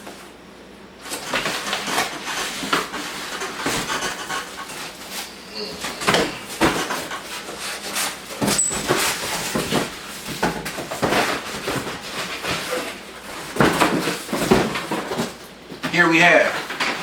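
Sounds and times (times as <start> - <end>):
cardboard box rustling and bumping: 5.7 - 15.4.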